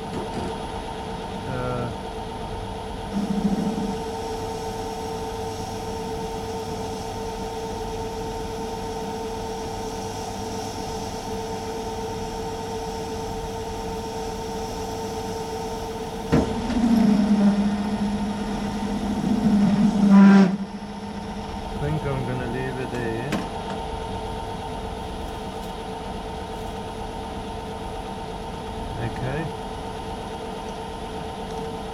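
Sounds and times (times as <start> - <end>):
metal lathe humming: 2.9 - 28.9
hissy metal cutting noise: 3.1 - 23.3.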